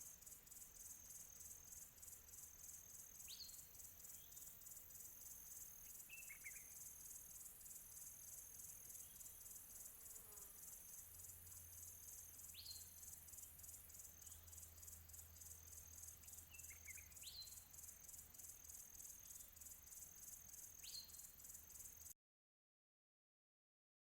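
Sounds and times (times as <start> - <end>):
insects chirring: 0.0 - 22.1.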